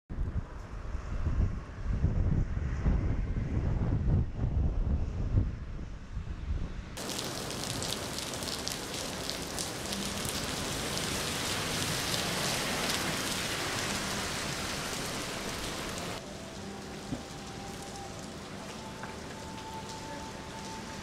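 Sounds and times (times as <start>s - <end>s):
rain on wet pavement: 7.0s - 21.0s.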